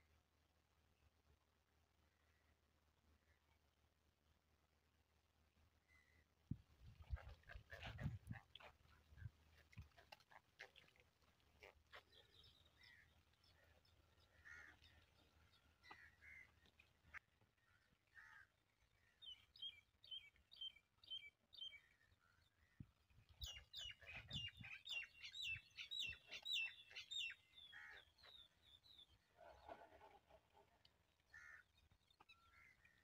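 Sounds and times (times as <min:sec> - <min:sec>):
bird chirping: 0:23.4 - 0:29.8.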